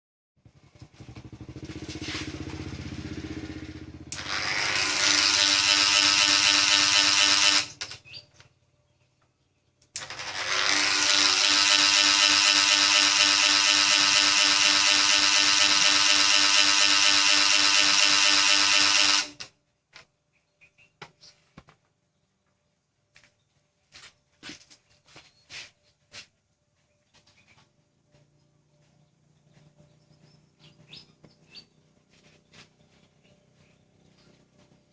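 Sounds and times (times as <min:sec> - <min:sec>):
electric fan motor whirring: 0:04.1 - 0:07.9, 0:10.0 - 0:19.5.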